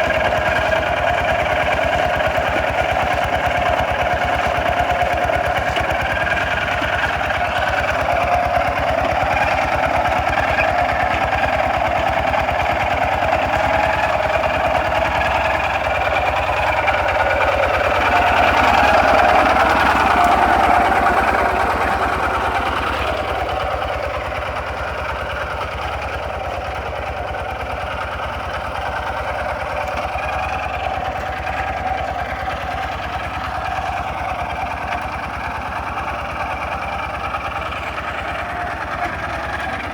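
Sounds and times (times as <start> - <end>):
diesel tractor engine chugging: 0.0 - 39.9.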